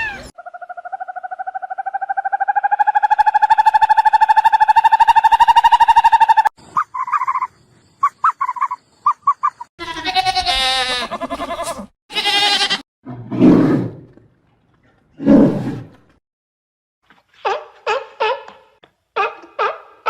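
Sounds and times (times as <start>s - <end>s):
animal chirps: 0.0s - 9.7s
long wavering animal call: 0.4s - 6.5s.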